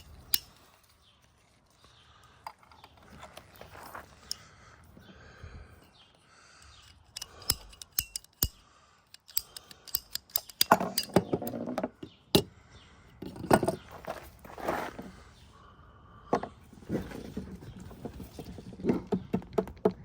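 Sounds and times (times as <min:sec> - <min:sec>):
sharp clicks and snips: 0:06.6 - 0:11.1.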